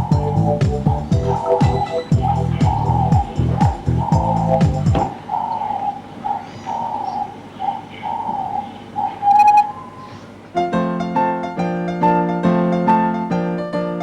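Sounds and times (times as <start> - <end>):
thin wavering high tone: 0.0 - 4.6, 8.4 - 10.2
piano playing chords: 0.0 - 5.2, 10.4 - 14.0.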